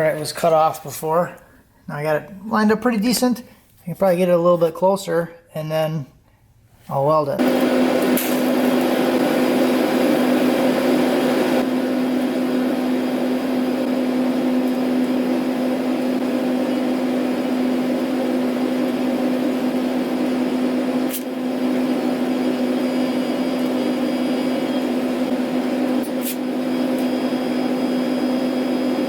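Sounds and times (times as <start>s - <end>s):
motor or blower humming: 7.4s - 29.0s.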